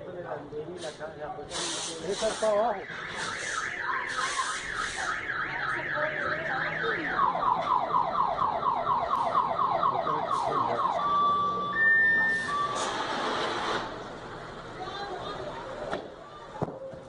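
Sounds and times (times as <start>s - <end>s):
bursts of hiss: 0.8s - 5.1s
car alarm whooping and beeping: 2.7s - 12.8s.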